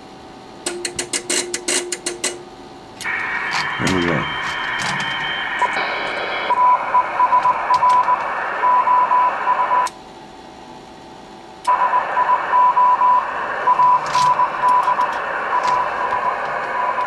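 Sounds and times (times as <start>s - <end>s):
morse code tone: 3.0s - 9.9s, 11.7s - 17.0s
radio static hiss: 3.0s - 9.9s, 11.7s - 17.0s.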